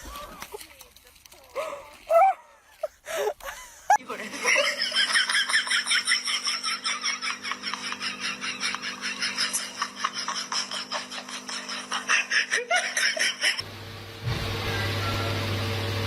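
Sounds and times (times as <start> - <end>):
high-pitched laughter: 2.1 - 13.6.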